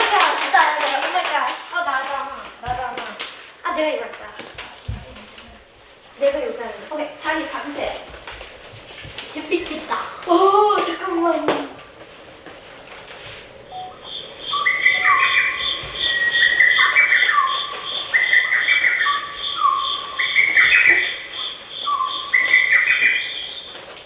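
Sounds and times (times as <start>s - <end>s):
steady high electronic tone: 13.7s - 23.5s
electronic chirping tune: 13.7s - 23.7s.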